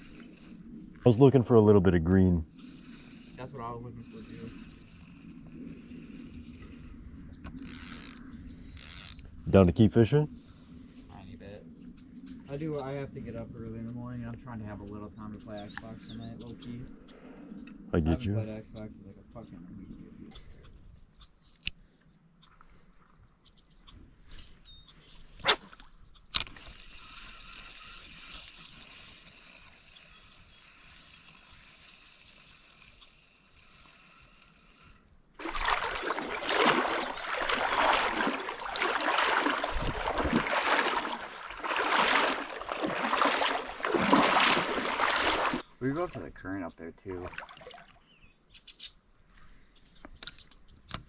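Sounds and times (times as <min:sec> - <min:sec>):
insects chirring: 0:00.0 - 0:51.0
water splashing and sloshing: 0:35.4 - 0:45.7, 0:47.1 - 0:48.1.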